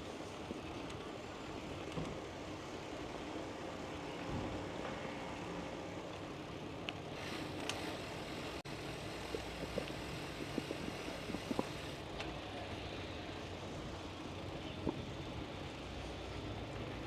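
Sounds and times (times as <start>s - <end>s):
bicycle tyres rolling: 0.0s - 17.0s.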